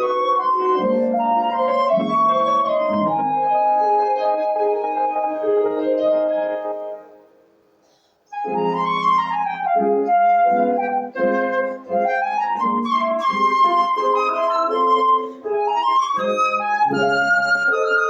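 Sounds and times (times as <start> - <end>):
flute melody: 0.0 - 7.4, 8.3 - 18.0
piano accompaniment: 0.0 - 7.7, 8.3 - 18.0.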